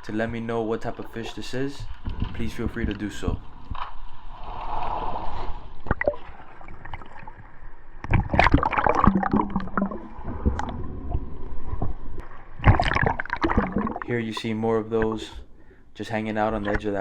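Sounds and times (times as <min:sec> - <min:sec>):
water gurgling and splashing: 0:04.4 - 0:15.5, 0:16.4 - 0:17.0.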